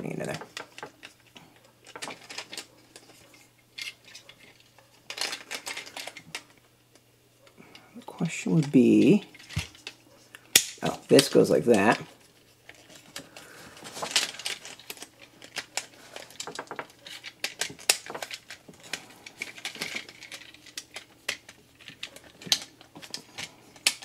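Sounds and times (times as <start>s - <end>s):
plastic toy parts clicking: 1.8s - 3.2s, 3.8s - 7.0s, 8.6s - 12.0s, 14.0s - 24.0s.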